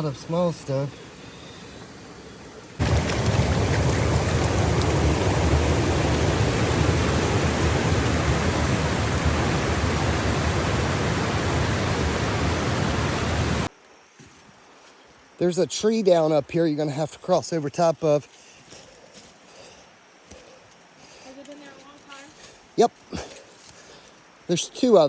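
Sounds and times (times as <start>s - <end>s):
rushing water: 0.0s - 13.7s.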